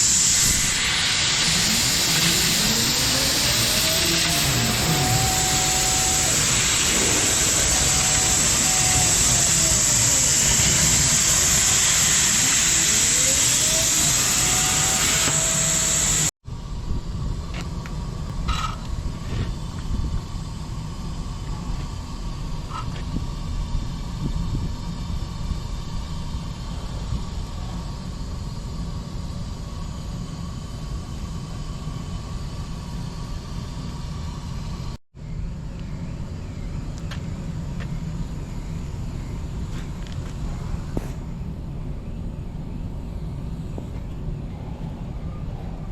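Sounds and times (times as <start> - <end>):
loud high hiss: 0.0 - 35.0
machine whines: 0.0 - 45.9
steady low hum: 0.0 - 45.9.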